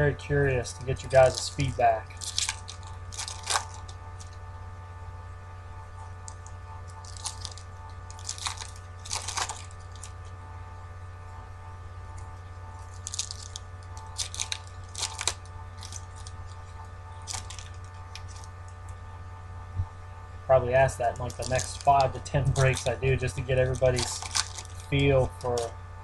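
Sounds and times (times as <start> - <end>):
steady electrical hum: 0.0 - 26.0
trading cards crinkling: 0.6 - 4.5, 6.2 - 10.4, 12.1 - 19.0, 20.6 - 25.7.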